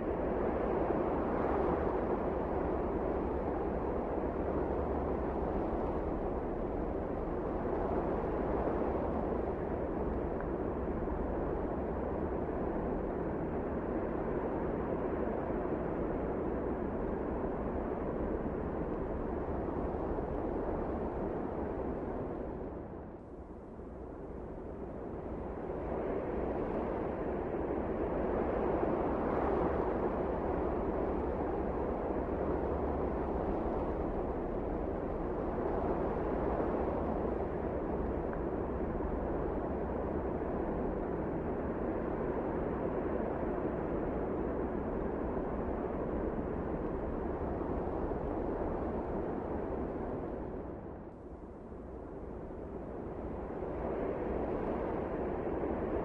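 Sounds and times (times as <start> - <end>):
blizzard wind rushing: 23.8 - 56.0.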